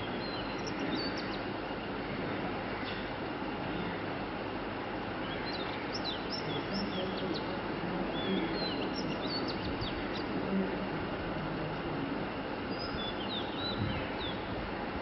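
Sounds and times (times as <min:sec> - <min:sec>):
small birds chirping: 0:00.0 - 0:01.9, 0:05.2 - 0:10.9, 0:11.6 - 0:14.6
steady background rumble: 0:00.0 - 0:15.0.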